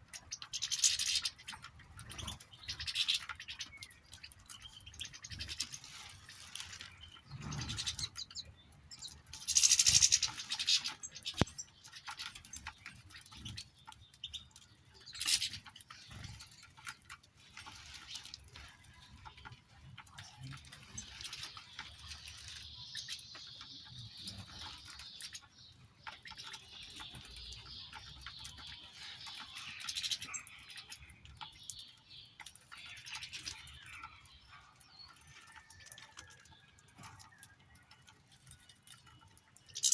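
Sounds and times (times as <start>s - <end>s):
finches chirping and twittering: 0.0s - 39.9s.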